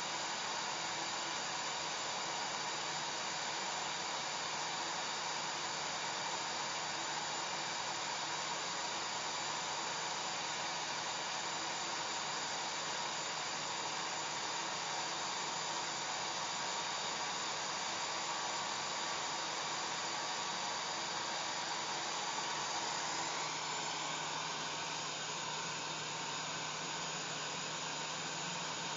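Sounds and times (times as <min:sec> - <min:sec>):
hair dryer running: 0:19.6 - 0:28.9.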